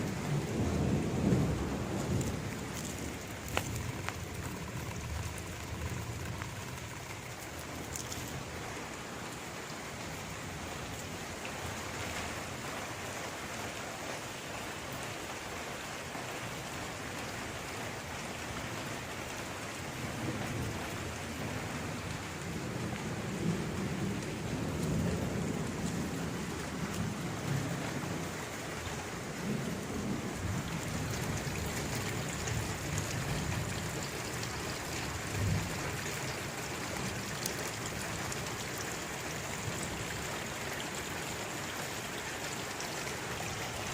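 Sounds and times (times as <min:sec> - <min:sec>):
low rumble of thunder: 0:00.0 - 0:08.6, 0:19.9 - 0:40.3
steady rain falling: 0:00.0 - 0:43.9.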